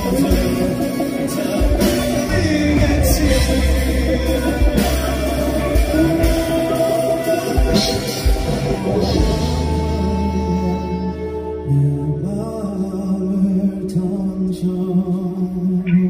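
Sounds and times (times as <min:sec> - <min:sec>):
drum kit: 0:00.0 - 0:11.7
bass guitar: 0:00.0 - 0:16.0
live band music: 0:00.0 - 0:16.0.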